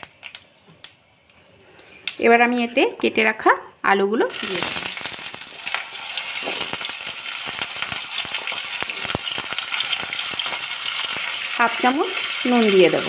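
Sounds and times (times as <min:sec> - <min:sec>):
oil sizzling in a pan: 0:04.3 - 0:13.0.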